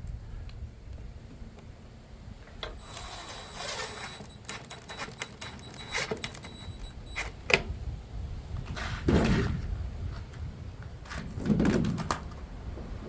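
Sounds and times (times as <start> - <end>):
wind rumble on microphone: 0.0 - 2.4, 6.8 - 13.0
hardware clicking and knocking: 2.5 - 7.7.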